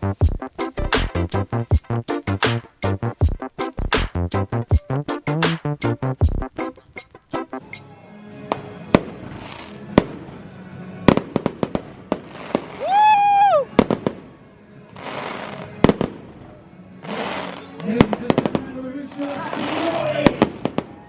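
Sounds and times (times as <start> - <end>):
fireworks bangs and crackling: 17.1 - 21.0.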